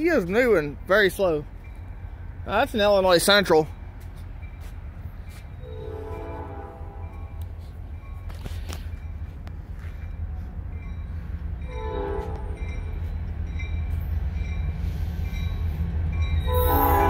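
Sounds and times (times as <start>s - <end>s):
crossing bell dinging: 0.0s - 17.0s
diesel locomotive rumble: 0.0s - 17.0s
train horn blast: 5.6s - 7.3s, 11.7s - 12.7s, 16.4s - 17.0s.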